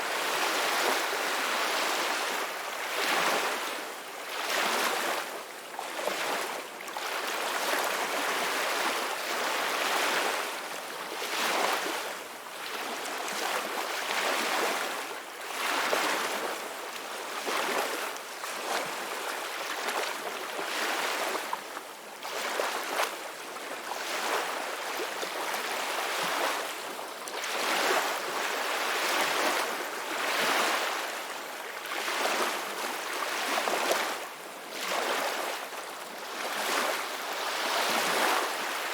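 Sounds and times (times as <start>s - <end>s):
ocean waves breaking on shore: 0.0s - 5.4s, 23.8s - 38.9s.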